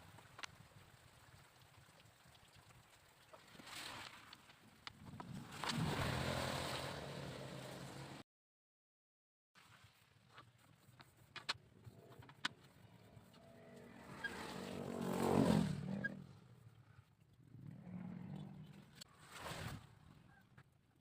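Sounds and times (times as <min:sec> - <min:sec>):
vehicle engine passing by: 0:05.5 - 0:08.2, 0:13.0 - 0:16.5, 0:17.4 - 0:19.0.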